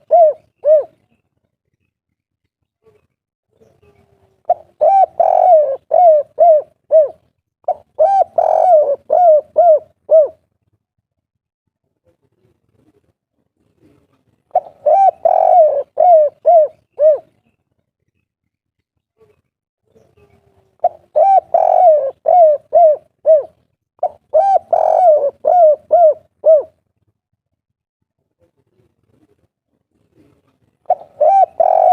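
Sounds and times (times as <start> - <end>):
dove cooing: 0.0 - 1.1, 3.8 - 10.4, 13.9 - 17.4, 20.3 - 26.8, 30.2 - 31.9.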